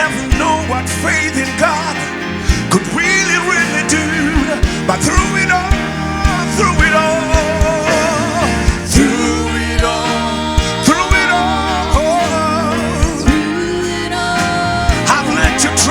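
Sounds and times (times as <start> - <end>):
band with steady drum beat: 4.3 - 13.8, 14.4 - 15.9.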